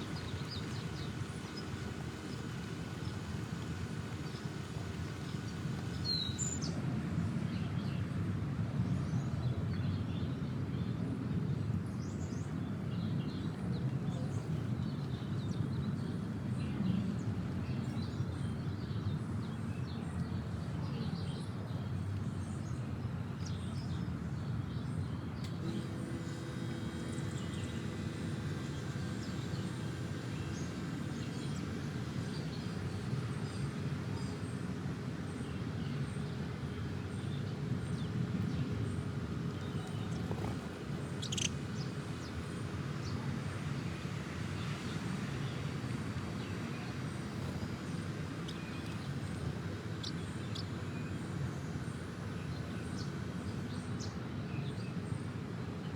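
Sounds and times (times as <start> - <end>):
birds chirping: 0.0 - 6.7, 25.5 - 43.7, 44.6 - 54.7.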